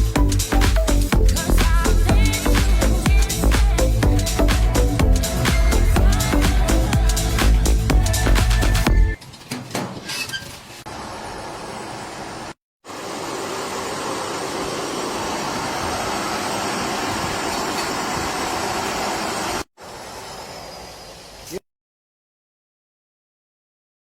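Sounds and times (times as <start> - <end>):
poultry processing machinery running: 10.9 - 19.6.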